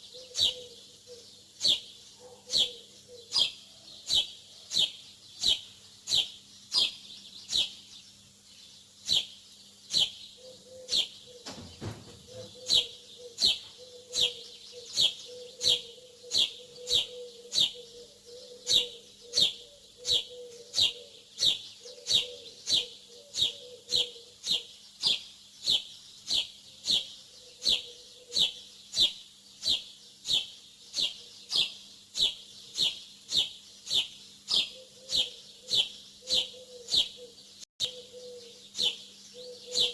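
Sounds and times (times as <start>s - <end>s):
small bird chirping: 0.0s - 39.9s
faint low hum: 10.0s - 20.8s.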